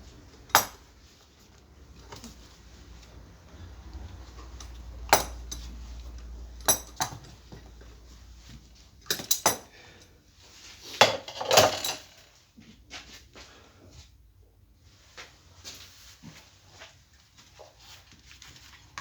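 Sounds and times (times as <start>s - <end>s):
metal tools clinking: 4.5s - 7.4s, 9.0s - 10.1s, 11.0s - 12.3s.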